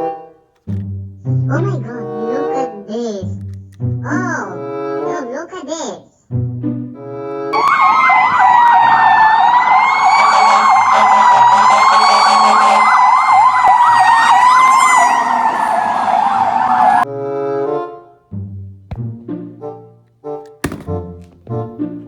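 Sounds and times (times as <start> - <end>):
siren wail: 7.6 - 17.0
siren yelp: 7.6 - 17.0.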